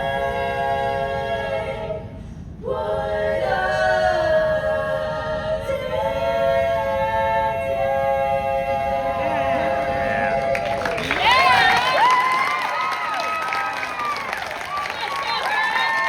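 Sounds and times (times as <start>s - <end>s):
vocal ensemble singing chords: 0.0s - 11.9s.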